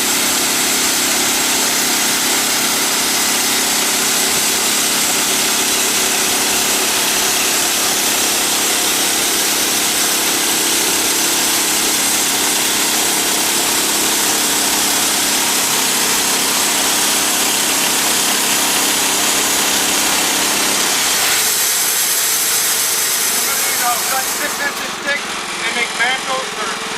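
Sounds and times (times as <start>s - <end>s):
sawmill engine hum: 0.0s - 26.9s
band blade sawing hiss: 21.3s - 25.0s.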